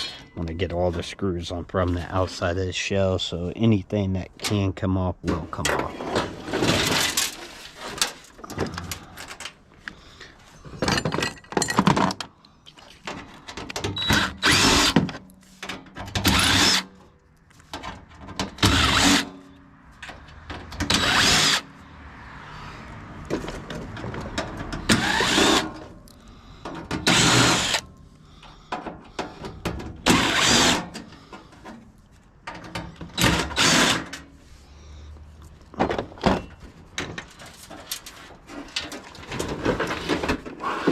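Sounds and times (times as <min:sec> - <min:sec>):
cordless drill bursts: 0:14.0 - 0:15.0, 0:16.2 - 0:16.9, 0:18.6 - 0:19.3, 0:20.9 - 0:21.6, 0:24.9 - 0:25.7, 0:27.0 - 0:27.8, 0:30.0 - 0:30.9, 0:33.2 - 0:34.1.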